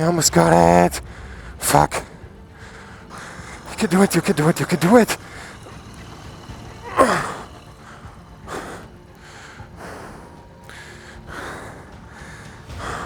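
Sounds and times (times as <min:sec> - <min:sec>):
man panting hard: 0:01.0 - 0:13.0.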